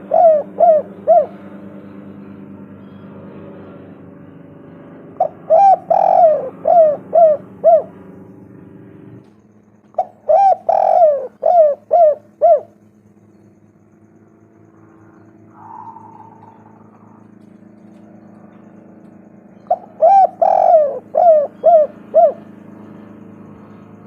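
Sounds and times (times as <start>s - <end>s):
dove cooing: 0.0s - 1.8s, 5.2s - 8.1s, 9.9s - 12.9s, 14.8s - 24.0s.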